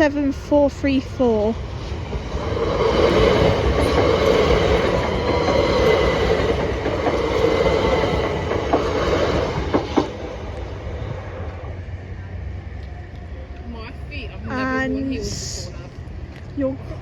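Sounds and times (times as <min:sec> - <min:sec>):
train wheels rumbling on rails: 0:00.0 - 0:17.0
train whine: 0:00.0 - 0:17.0
wheels clacking: 0:02.0 - 0:10.7.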